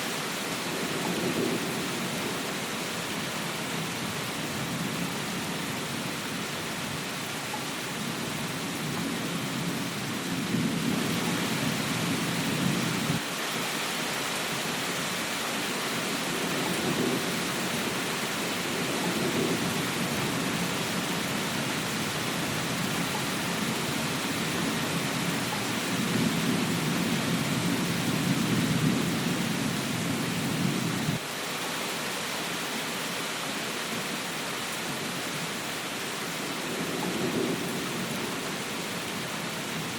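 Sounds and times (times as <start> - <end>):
steady rain: 0.0 - 39.9
thunder rumbling: 4.5 - 13.2, 16.3 - 31.2.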